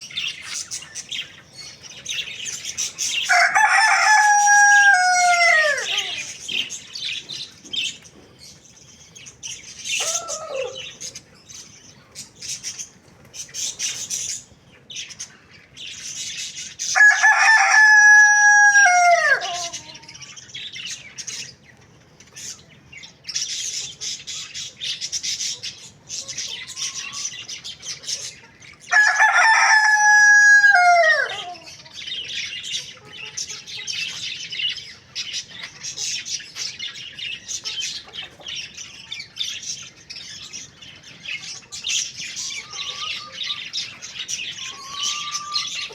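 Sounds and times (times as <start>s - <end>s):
rooster crowing: 3.2s - 6.3s, 10.0s - 10.9s, 16.9s - 20.2s, 28.9s - 31.8s
rapid high bird chirping: 34.9s - 45.9s.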